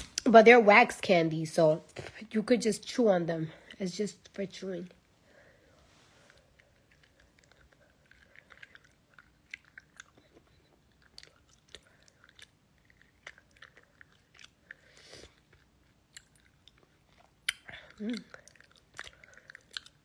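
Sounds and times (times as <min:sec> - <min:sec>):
chewing wax candy: 0:06.2 - 0:20.0.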